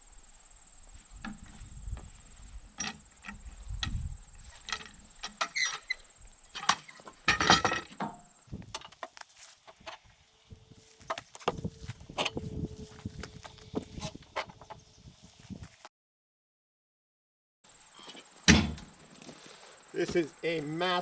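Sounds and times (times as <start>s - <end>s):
log knocking and thumping: 8.5s - 14.8s.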